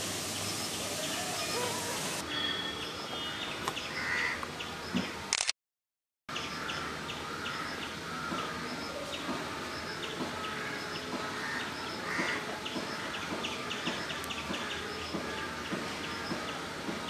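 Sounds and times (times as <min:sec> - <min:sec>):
outdoor background hiss: 0:00.0 - 0:05.3, 0:06.3 - 0:17.0.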